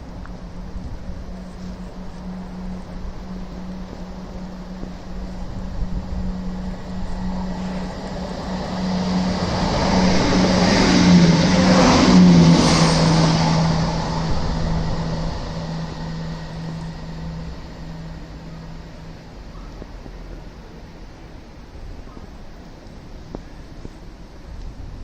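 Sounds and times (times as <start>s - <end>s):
train passing by humming: 0.0s - 25.0s
wheel and track noise: 0.0s - 25.0s.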